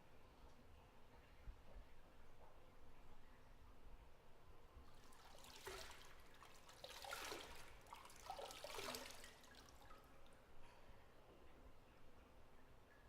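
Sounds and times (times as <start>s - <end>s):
bathwater sloshing: 4.9s - 10.4s.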